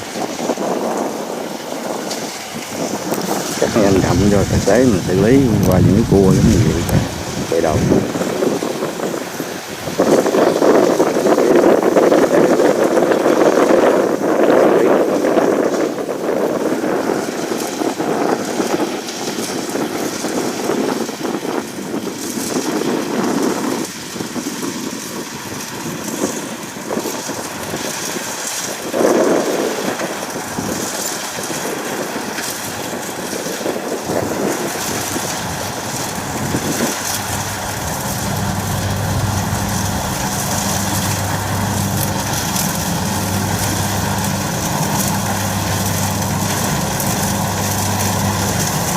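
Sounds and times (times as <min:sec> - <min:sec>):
combine harvester running: 0:00.0 - 0:13.8, 0:24.3 - 0:48.9.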